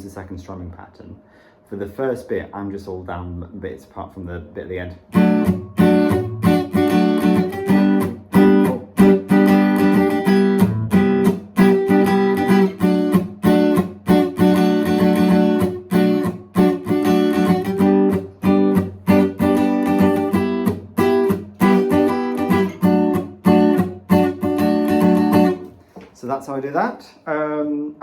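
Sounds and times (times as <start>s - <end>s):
acoustic guitar strumming: 5.0s - 26.0s.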